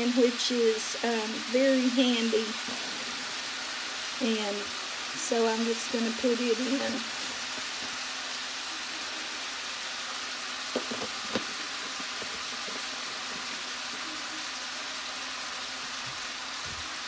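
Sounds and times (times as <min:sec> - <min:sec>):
meat sizzling in a frying pan: 0:00.0 - 0:17.0.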